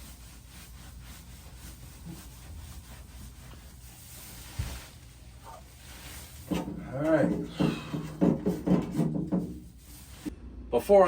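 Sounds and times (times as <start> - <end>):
rag rubbing over surface: 0.0 - 10.3
low knock: 6.5 - 9.6.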